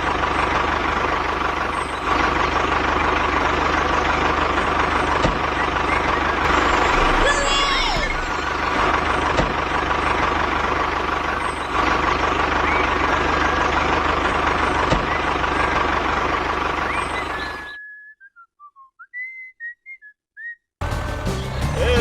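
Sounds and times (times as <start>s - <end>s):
vehicle and machinery noise: 0.0s - 17.8s
steady tone: 6.4s - 9.2s
person whistling: 17.8s - 20.7s.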